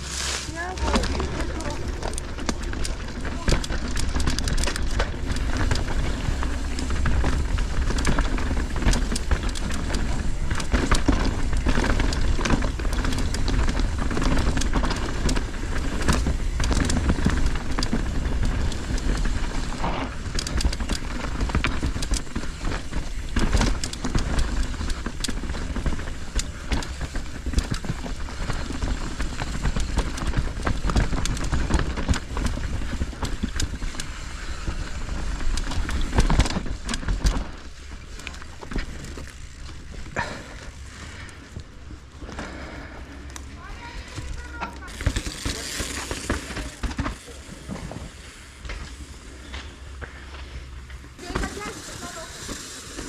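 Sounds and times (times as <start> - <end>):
bike rattling over rocks: 0.0 - 53.0.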